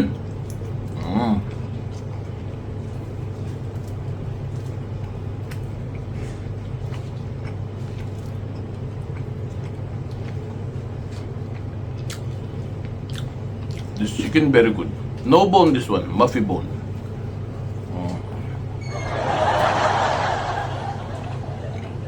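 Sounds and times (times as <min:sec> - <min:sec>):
eating clicks and smacks: 0:00.1 - 0:14.3
low hum: 0:18.2 - 0:22.0.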